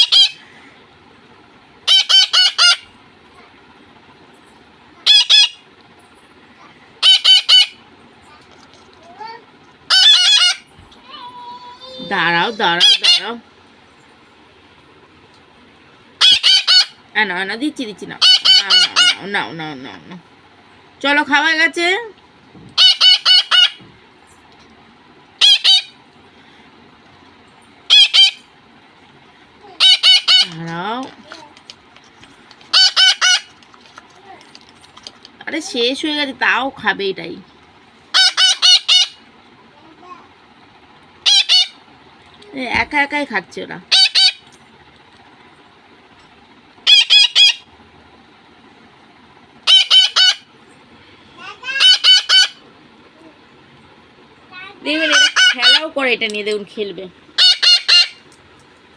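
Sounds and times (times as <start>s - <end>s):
parrot screeching: 0.0s - 0.4s, 1.9s - 2.9s, 5.0s - 5.6s, 7.0s - 7.8s, 9.9s - 13.4s, 16.2s - 17.0s, 18.2s - 19.2s, 22.8s - 23.8s, 25.4s - 26.0s, 27.9s - 28.5s, 29.8s - 30.5s, 32.7s - 33.5s, 38.1s - 39.2s, 41.2s - 41.8s, 43.9s - 44.4s, 46.8s - 47.7s, 49.6s - 50.5s, 51.6s - 52.6s, 54.9s - 55.9s, 57.4s - 58.2s
parakeets calling shrilly: 0.0s - 0.7s, 1.8s - 3.0s, 4.9s - 5.8s, 6.6s - 8.4s, 9.2s - 13.4s, 16.2s - 17.0s, 18.0s - 19.6s, 22.8s - 23.8s, 25.4s - 26.0s, 27.8s - 28.6s, 29.6s - 31.4s, 32.6s - 33.7s, 38.0s - 39.3s, 41.2s - 41.9s, 43.9s - 44.6s, 46.8s - 47.7s, 49.6s - 52.6s, 54.8s - 56.1s, 57.3s - 58.3s.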